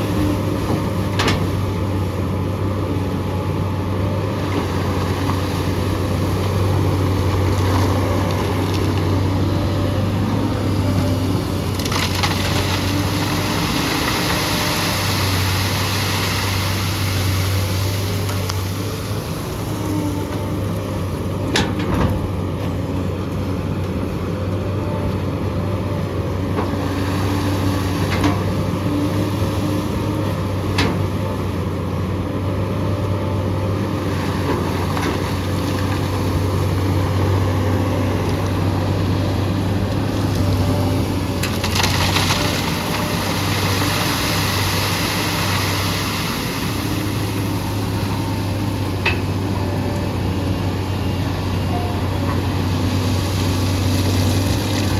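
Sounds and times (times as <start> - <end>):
excavator diesel engine running: 0.0 - 54.9
gravel rushing hiss: 10.2 - 20.0, 39.8 - 48.7.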